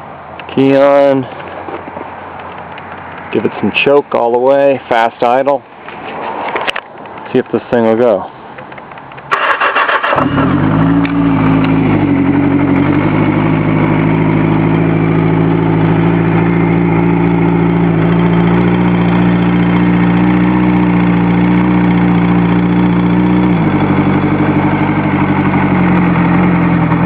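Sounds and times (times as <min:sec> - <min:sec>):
motorcycle engine fast idling: 0:09.3 - 0:27.0.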